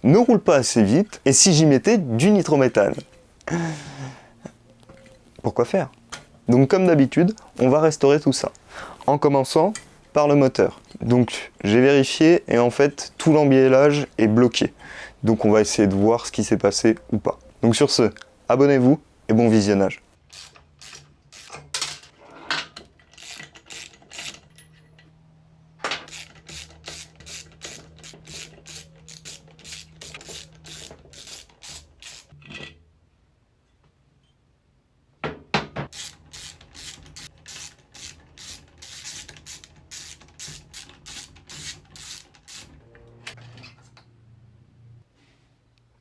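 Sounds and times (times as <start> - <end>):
ratchet wrench clicking: 20.3 - 21.6, 23.2 - 24.5, 26.1 - 32.3, 35.9 - 42.7.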